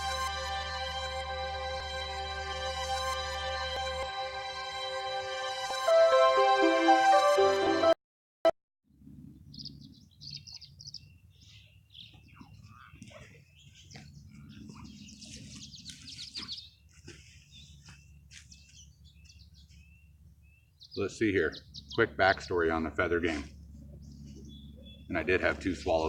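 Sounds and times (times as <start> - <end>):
low outdoor rumble: 8.9 - 26.0
swallows chirping and twittering: 9.3 - 26.0.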